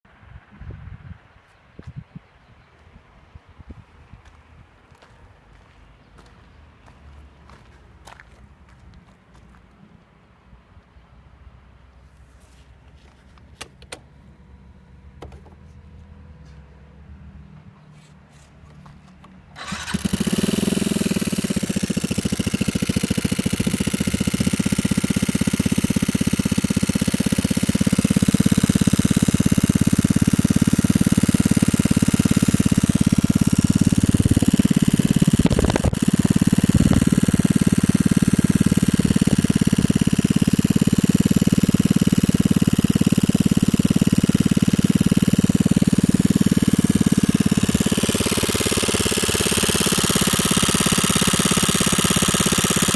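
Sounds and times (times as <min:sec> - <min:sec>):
scooter engine idling: 0:18.7 - 0:52.9.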